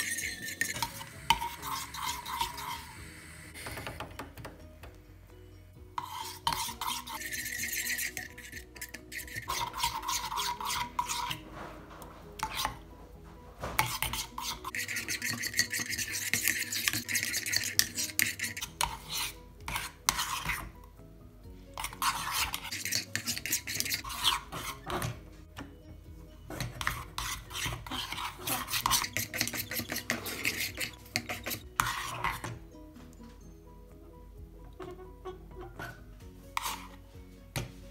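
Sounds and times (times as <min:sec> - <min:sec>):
metal spoon scraping saucepan: 0:00.0 - 0:04.1, 0:06.0 - 0:13.0, 0:13.7 - 0:20.8, 0:21.8 - 0:25.2, 0:26.4 - 0:32.6, 0:34.6 - 0:37.0.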